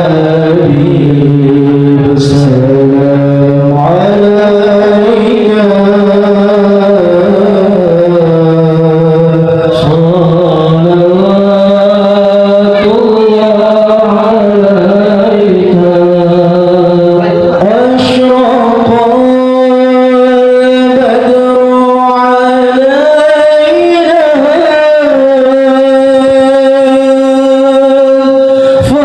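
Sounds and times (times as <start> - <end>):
man chanting: 0.0 - 29.0.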